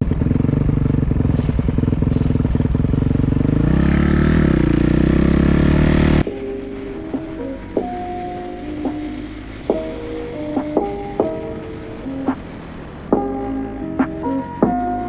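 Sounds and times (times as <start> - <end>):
dirt bike engine revving: 0.0 - 6.3.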